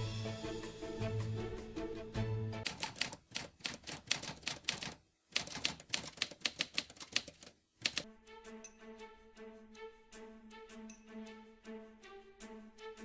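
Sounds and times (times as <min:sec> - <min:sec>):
music with held notes: 0:00.0 - 0:02.6, 0:08.1 - 0:13.0
typewriter keys clacking: 0:02.6 - 0:08.0.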